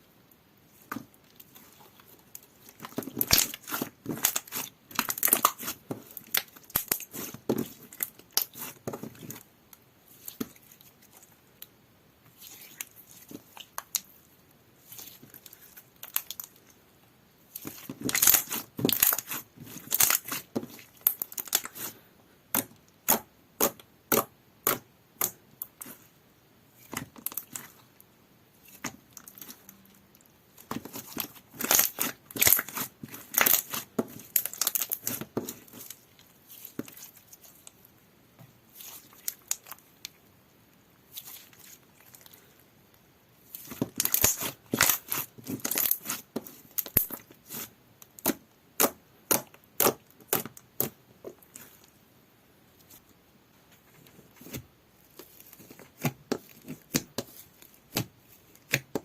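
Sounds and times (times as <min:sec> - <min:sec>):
slime squished by hand: 0:00.8 - 0:09.4, 0:17.5 - 0:26.1, 0:30.6 - 0:37.6.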